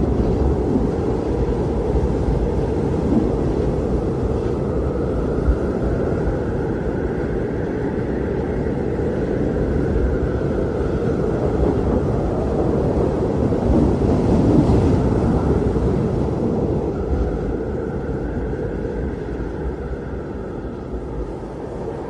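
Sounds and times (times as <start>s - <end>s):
blizzard wind blowing hard: 0.0s - 22.0s.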